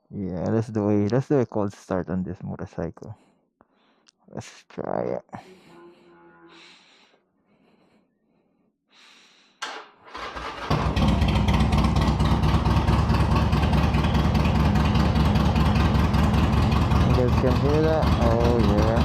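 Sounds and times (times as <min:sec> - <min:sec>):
motorcycle starter cranking: 0:09.6 - 0:18.6
motorcycle engine idling: 0:10.2 - 0:19.0.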